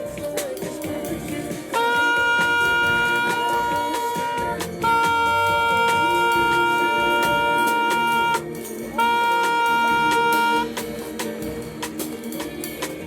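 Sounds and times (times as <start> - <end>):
jazz band with saxophone and brass: 0.0 - 13.0
horns holding long loud note: 1.7 - 10.8.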